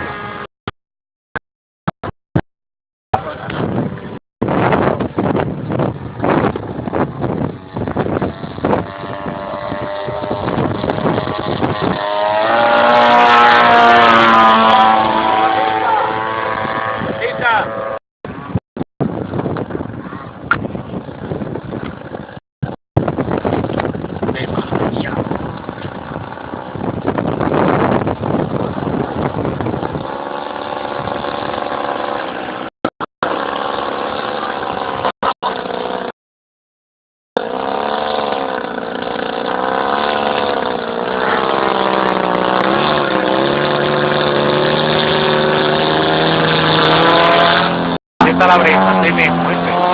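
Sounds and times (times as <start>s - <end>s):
wind noise on microphone: 3.2s - 36.0s, 37.6s - 49.9s
model plane engine running: 5.9s - 17.7s, 23.7s - 36.1s, 37.4s - 46.8s.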